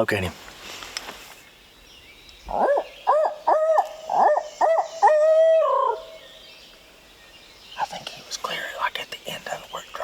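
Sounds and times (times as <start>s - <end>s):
owl hooting: 2.5s - 6.2s.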